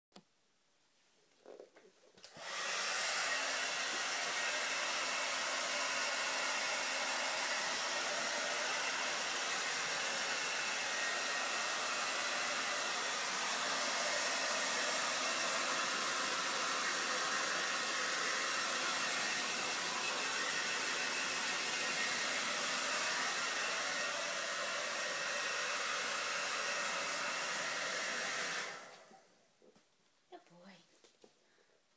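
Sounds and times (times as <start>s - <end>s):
hair dryer running: 2.2s - 29.3s.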